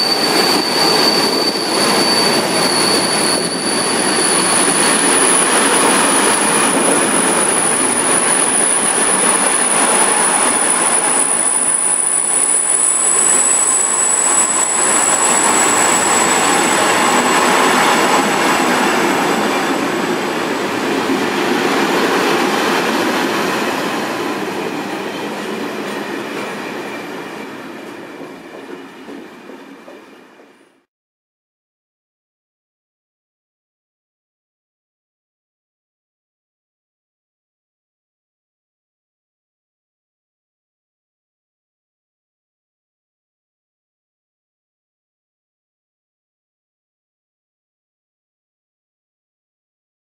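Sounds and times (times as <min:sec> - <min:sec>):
high-pitched wheel squeal: 0:00.0 - 0:20.0
train wheels rumbling on rails: 0:00.0 - 0:30.8.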